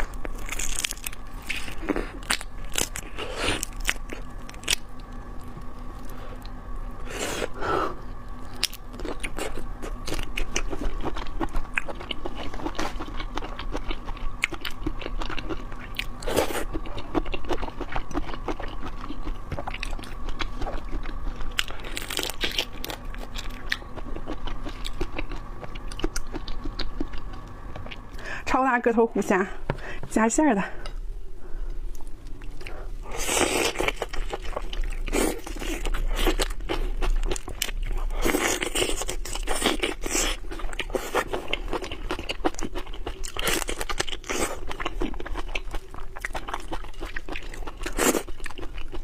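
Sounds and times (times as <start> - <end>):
crunching and chewing prawns: 0.0 - 28.2, 31.9 - 49.0.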